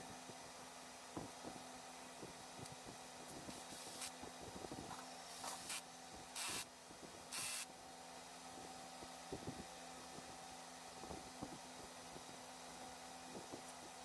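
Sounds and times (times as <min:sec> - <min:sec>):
short hissing spray bursts: 0:03.5 - 0:04.2, 0:05.3 - 0:06.7, 0:07.3 - 0:07.7.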